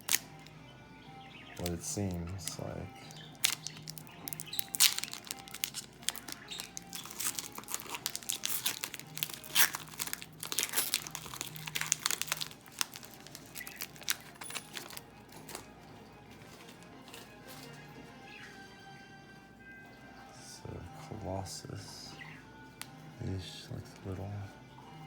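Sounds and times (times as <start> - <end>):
wrapper crinkling and tearing: 0.0 - 0.5, 1.6 - 15.7
cards being handled: 1.6 - 15.7.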